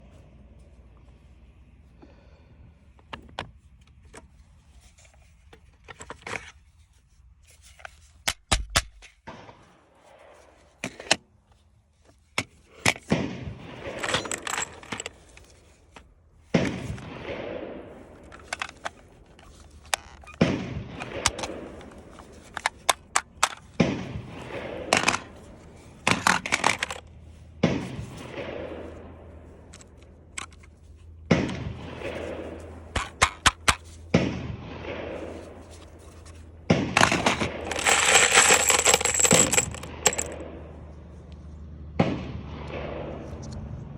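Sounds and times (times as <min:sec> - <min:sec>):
rifle and magazine handling clicks: 0:18.1 - 0:23.9, 0:29.6 - 0:30.8.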